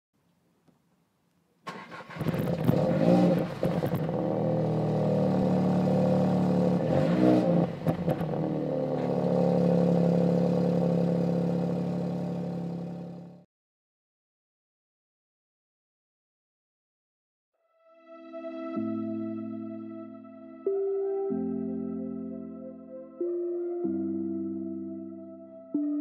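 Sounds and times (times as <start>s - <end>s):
car engine starting and revving: 1.7s - 13.4s.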